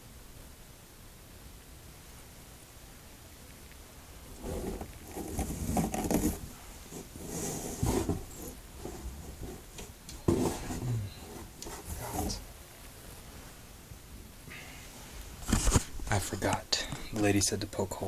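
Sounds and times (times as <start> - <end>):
bird scuffling in a box: 4.4 - 12.4.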